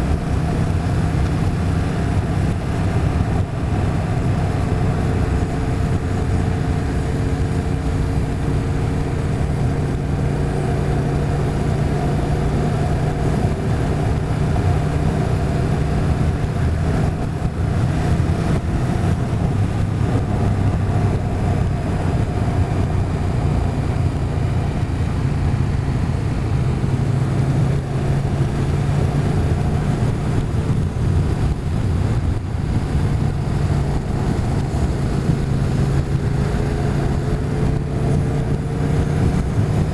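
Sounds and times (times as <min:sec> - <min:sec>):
motorcycle engine cruising: 0:00.0 - 0:39.9
road and wind noise: 0:00.0 - 0:39.9.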